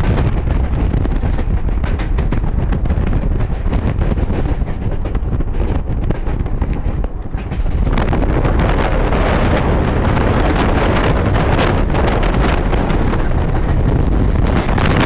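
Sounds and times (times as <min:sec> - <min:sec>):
train wheels rumbling on track: 0:00.0 - 0:15.0
wind on microphone: 0:00.0 - 0:15.0.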